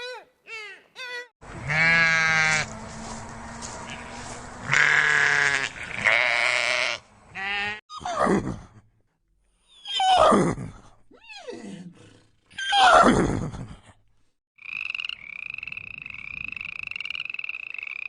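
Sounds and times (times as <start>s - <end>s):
goat bleating: 1.5s - 2.7s, 3.6s - 7.8s.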